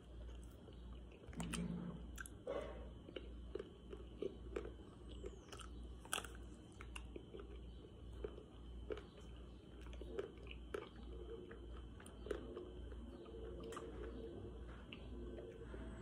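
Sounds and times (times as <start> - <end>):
wet chewing: 0.0 - 15.6
chocolate coating crunching: 3.1 - 14.2.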